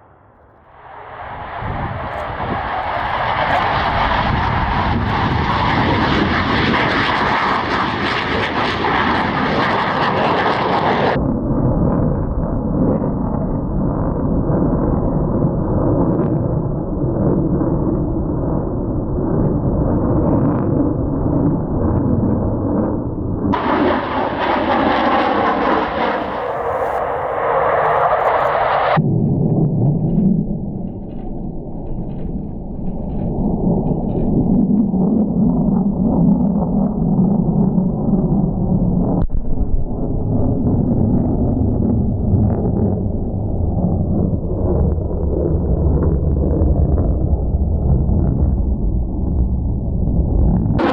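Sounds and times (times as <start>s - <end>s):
jet engines roaring: 0.7s - 11.2s, 23.6s - 29.0s, 47.4s - 50.9s.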